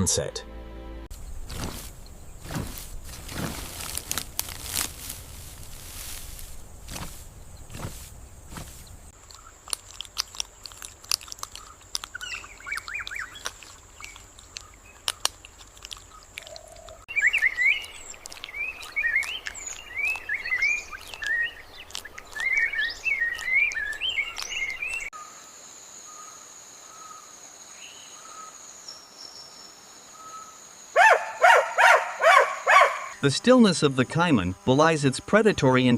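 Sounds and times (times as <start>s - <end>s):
high insect-like whine: 1.1s - 9.1s
birds chirping: 1.1s - 10.8s, 11.4s - 25.2s, 27.8s - 33.4s.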